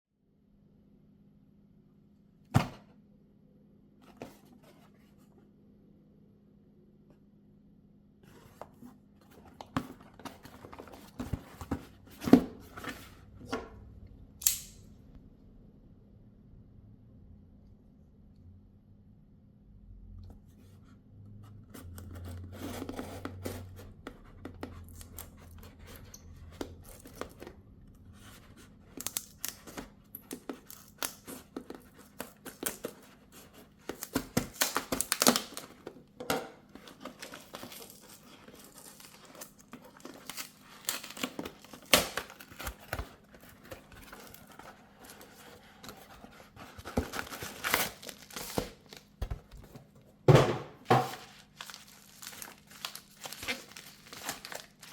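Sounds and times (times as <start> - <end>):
packaging tearing and crinkling: 28.9 - 36.0, 36.7 - 49.1, 51.0 - 54.9.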